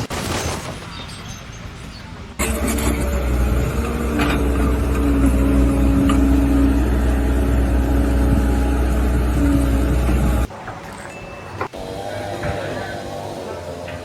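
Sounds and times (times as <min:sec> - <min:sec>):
engine rumbling: 0:00.8 - 0:10.9.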